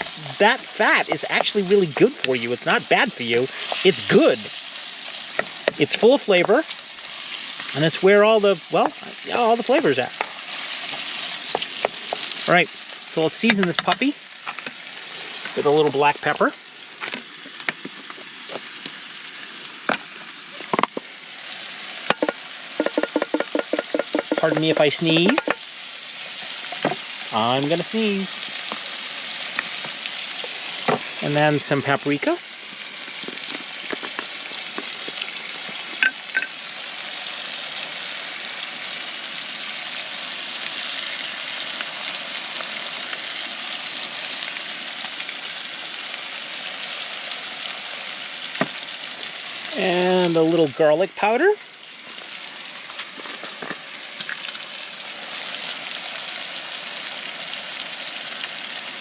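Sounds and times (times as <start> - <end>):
ground beef sizzling in a pan: 0.0 - 59.0
sharp clicks and knocks: 22.1 - 25.6.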